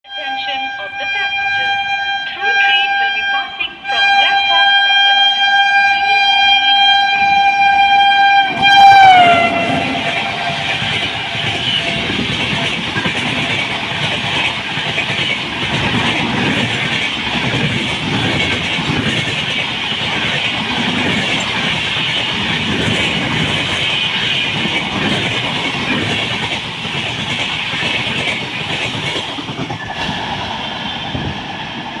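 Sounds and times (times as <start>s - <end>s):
locomotive horn: 0.0s - 12.2s
train coaches rushing past: 6.6s - 32.0s.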